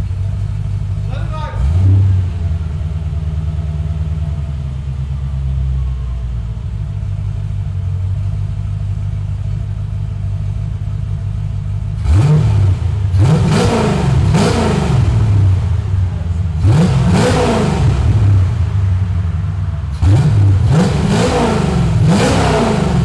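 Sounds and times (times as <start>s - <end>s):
car engine idling: 0.0s - 23.0s
engine revving: 0.7s - 5.2s, 11.8s - 23.0s.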